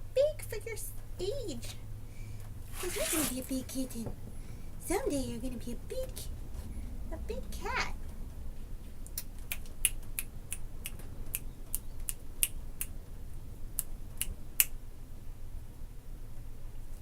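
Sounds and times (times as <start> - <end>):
sharp quick clicks: 9.0 - 13.0.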